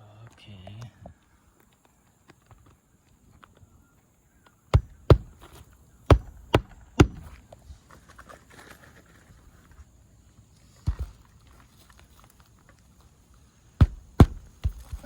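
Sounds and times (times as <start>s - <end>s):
hammer driving nails into shingle: 4.7s - 7.4s, 13.8s - 15.0s.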